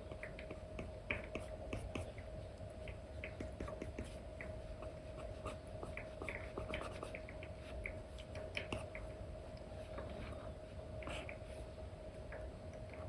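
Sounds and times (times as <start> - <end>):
faint steady hum: 0.0 - 13.0
stylus tapping and scratching: 0.1 - 9.1.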